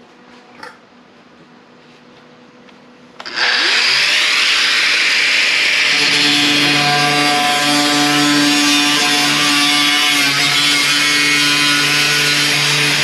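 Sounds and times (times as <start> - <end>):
power cutting tool cutting metal: 3.2 - 13.0.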